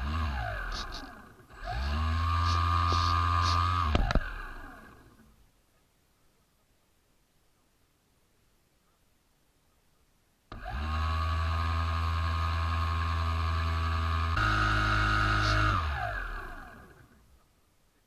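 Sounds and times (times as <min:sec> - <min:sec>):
small boat motor running: 0:00.0 - 0:05.2, 0:10.5 - 0:17.2.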